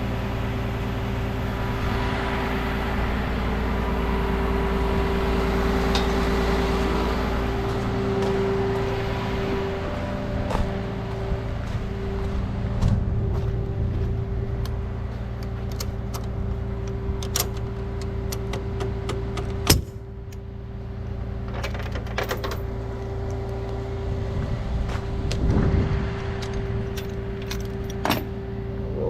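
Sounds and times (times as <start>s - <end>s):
truck engine idling: 0.0s - 29.0s.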